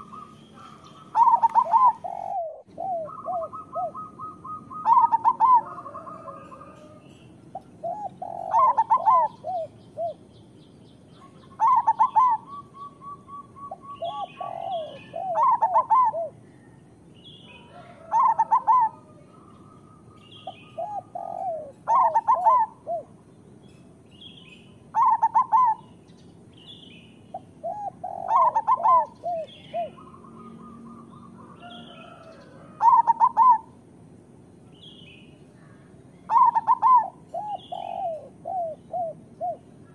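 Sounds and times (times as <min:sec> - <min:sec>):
dove cooing: 0:00.0 - 0:10.3, 0:11.2 - 0:16.8, 0:17.6 - 0:23.2, 0:24.9 - 0:25.9, 0:27.3 - 0:33.8, 0:36.3 - 0:39.9
faint high bird chirps: 0:00.0 - 0:22.8.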